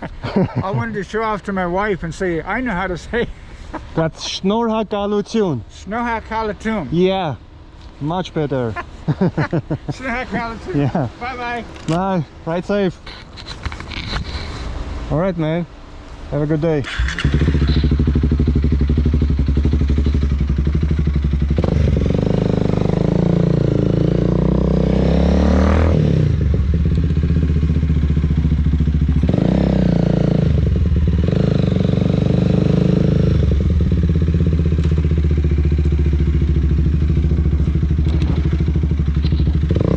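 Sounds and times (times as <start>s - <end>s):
motorcycle engine accelerating: 16.9s - 39.9s.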